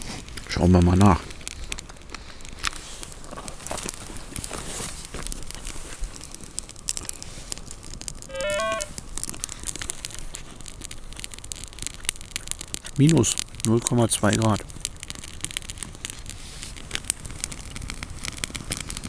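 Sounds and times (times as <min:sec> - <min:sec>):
campfire crackling: 0:00.0 - 0:19.0
rising electronic beep: 0:08.3 - 0:08.9.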